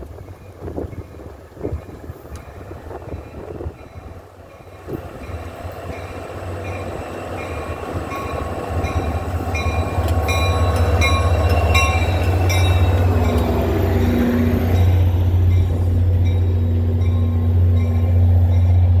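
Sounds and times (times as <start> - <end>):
train rumble approaching: 0.0 - 19.0
bell ringing: 7.5 - 13.6.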